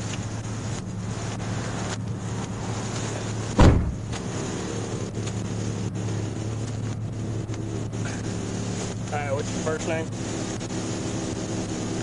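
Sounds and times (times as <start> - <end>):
idling vehicle hum: 0.0 - 12.0
loud thump: 3.6 - 4.3.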